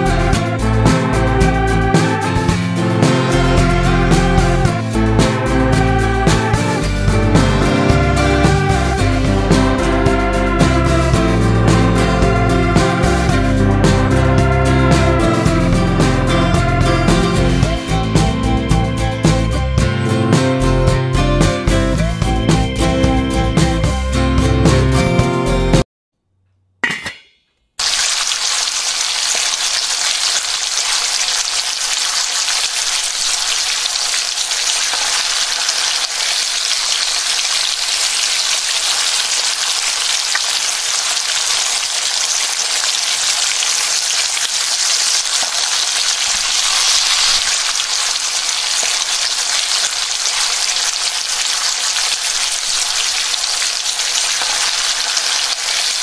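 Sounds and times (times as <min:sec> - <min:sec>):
onions sizzling in hot oil: 0:27.8 - 0:56.0.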